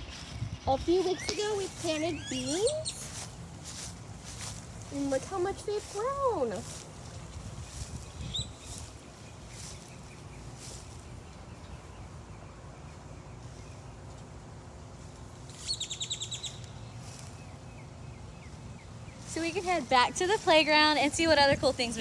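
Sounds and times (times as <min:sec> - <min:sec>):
fast bird trill: 0:00.0 - 0:03.4, 0:15.6 - 0:16.7
songbird chirping: 0:00.0 - 0:22.0.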